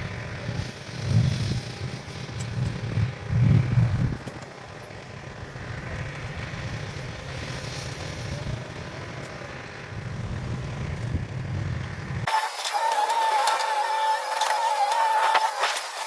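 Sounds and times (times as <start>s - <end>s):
heavy machine engine rumbling: 10.7s - 16.0s.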